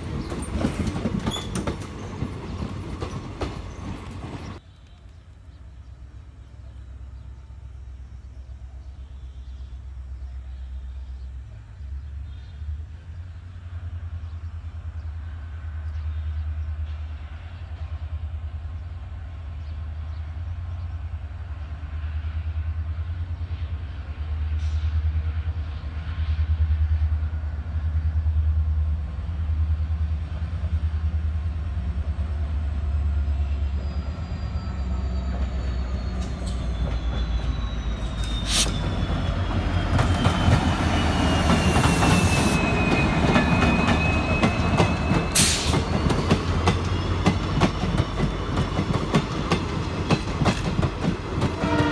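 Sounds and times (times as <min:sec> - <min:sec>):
wheels clattering over rail joints: 0:00.0 - 0:04.6
diesel locomotive engine rumbling: 0:00.0 - 0:51.9.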